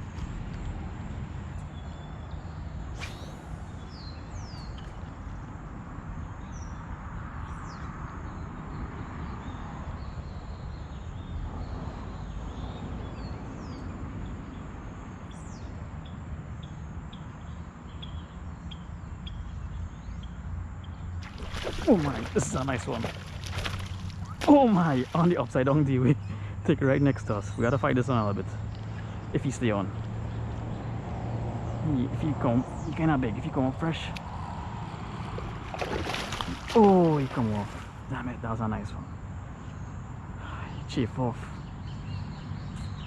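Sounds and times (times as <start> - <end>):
small birds chirping: 0.6 - 8.8, 16.6 - 43.0
falling bird whistles: 2.9 - 4.8.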